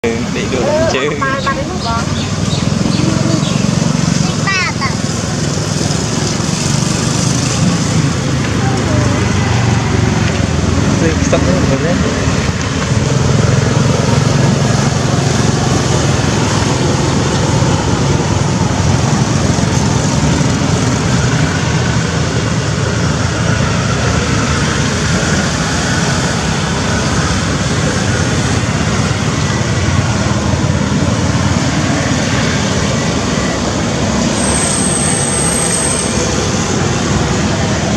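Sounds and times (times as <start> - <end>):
vehicle road noise: 0.0 - 37.9.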